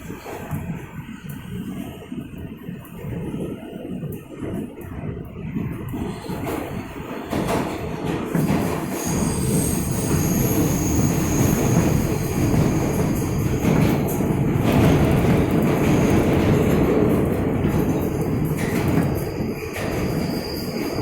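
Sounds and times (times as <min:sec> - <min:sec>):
subway car wheels rumbling: 0:00.0 - 0:21.0
high-pitched wheel squeal: 0:09.0 - 0:13.1, 0:19.6 - 0:21.0.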